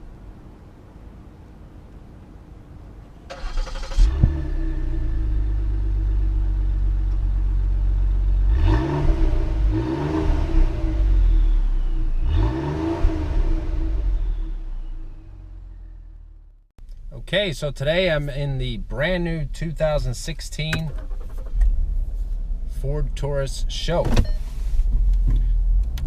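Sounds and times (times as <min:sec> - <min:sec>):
starter cranking engine: 0:03.3 - 0:04.2, 0:20.9 - 0:21.7
car engine idling: 0:03.3 - 0:09.8, 0:13.1 - 0:24.0
car engine revving: 0:03.3 - 0:16.0.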